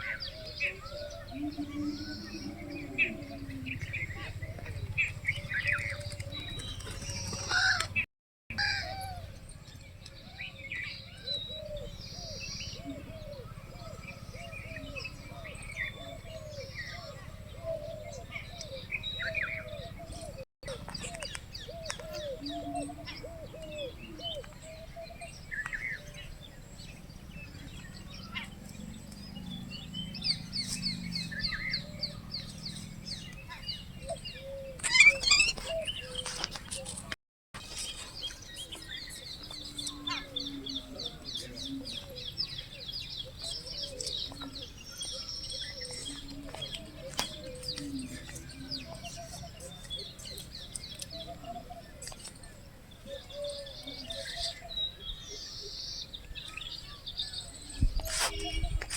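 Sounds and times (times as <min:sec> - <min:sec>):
birds chirping and trilling: 0:00.0 - 0:58.9
low warbling bird calls: 0:00.0 - 0:58.9.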